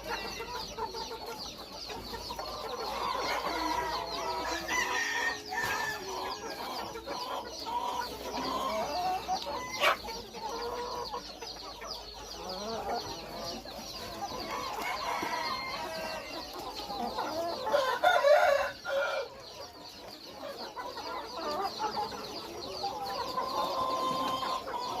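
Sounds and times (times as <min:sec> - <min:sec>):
chickens clucking: 0:00.0 - 0:25.0
roosters calling: 0:00.0 - 0:25.0.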